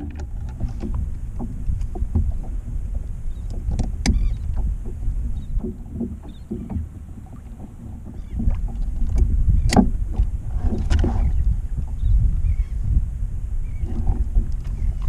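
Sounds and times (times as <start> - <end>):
knock on boat: 0.0 - 2.6, 3.5 - 11.3
water sloshing against hull: 0.0 - 15.0
wind buffeting microphone: 0.0 - 15.0.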